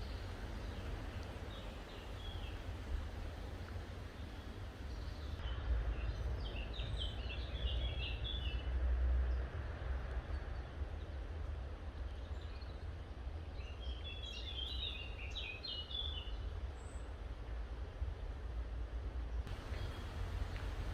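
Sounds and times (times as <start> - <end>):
songbird chirping: 0.0 - 8.6, 19.5 - 20.9.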